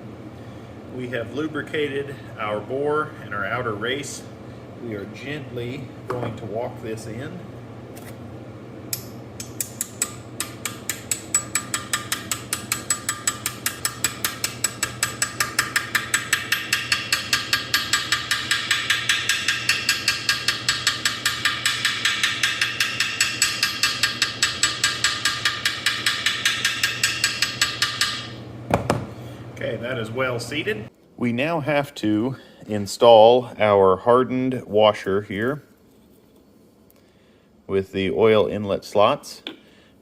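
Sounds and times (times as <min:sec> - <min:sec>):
hammer tapping metal: 0:08.9 - 0:29.0.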